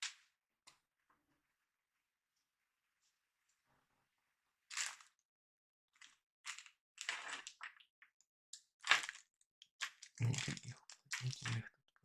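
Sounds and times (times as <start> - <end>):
plastic crackling and crunching: 6.5 - 7.8, 8.8 - 11.6.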